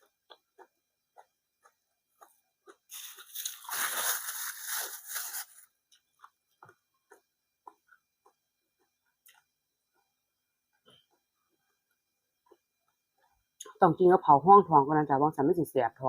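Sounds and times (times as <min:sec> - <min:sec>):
person chewing food: 0:00.0 - 0:13.6
loud crunching: 0:02.7 - 0:05.6
wet mouth clicks: 0:06.6 - 0:09.5.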